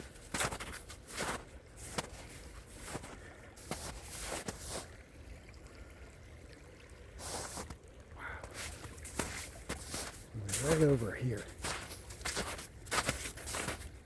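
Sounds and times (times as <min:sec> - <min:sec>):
footsteps: 0:00.0 - 0:04.9, 0:08.5 - 0:13.9
stream trickling: 0:00.0 - 0:14.0.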